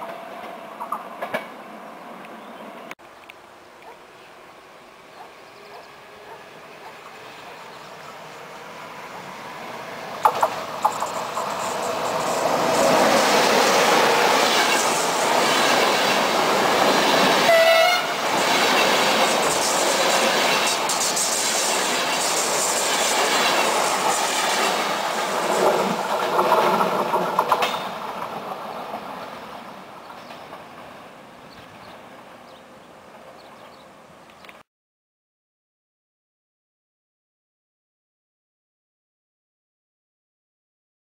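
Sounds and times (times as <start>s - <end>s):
train wheels clattering on rails: 0.0s - 1.6s, 10.2s - 31.0s
train horn blast: 17.4s - 18.2s.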